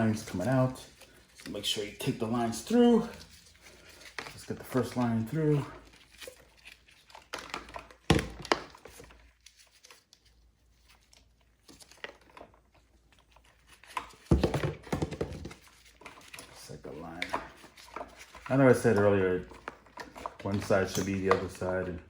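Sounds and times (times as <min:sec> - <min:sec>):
plastic parts knocking: 0:07.3 - 0:09.0, 0:14.0 - 0:16.2, 0:17.0 - 0:21.8.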